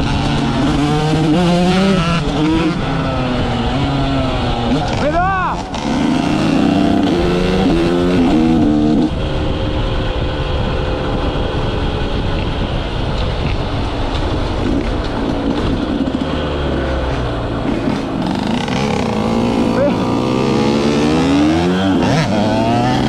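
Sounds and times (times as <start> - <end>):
motocross engine revving: 0.0 - 10.0, 14.6 - 23.0.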